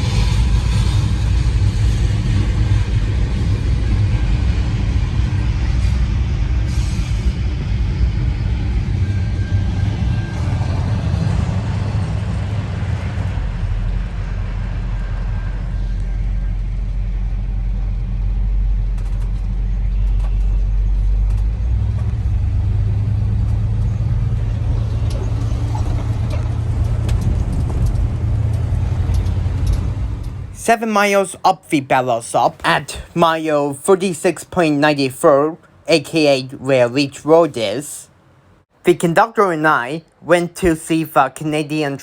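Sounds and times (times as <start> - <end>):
freight cars rolling on rails: 18.2 - 33.6.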